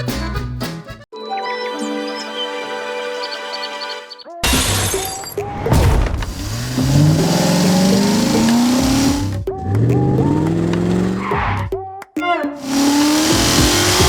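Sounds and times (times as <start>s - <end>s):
engine revving: 5.6s - 11.7s, 12.6s - 14.0s
loud steady hiss: 12.6s - 14.0s.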